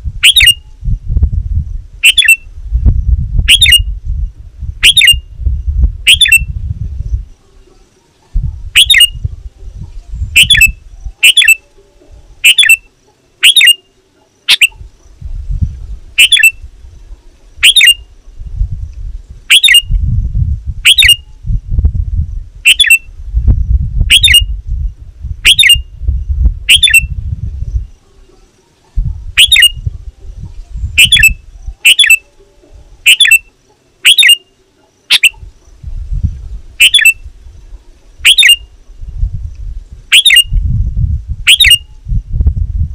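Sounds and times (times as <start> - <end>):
bird giving sharp calls: 0.2 - 0.6, 2.0 - 2.4, 3.5 - 3.8, 4.8 - 5.2, 6.1 - 6.5, 8.8 - 9.2, 10.3 - 11.7, 12.4 - 14.9, 16.2 - 16.6, 17.6 - 18.1, 19.5 - 19.9, 20.8 - 21.3, 22.6 - 23.1, 24.1 - 24.5, 25.4 - 25.9, 26.6 - 27.1, 29.4 - 29.9, 31.0 - 32.3, 33.0 - 35.5, 36.8 - 37.3, 38.2 - 38.7, 40.1 - 40.6, 41.5 - 41.9.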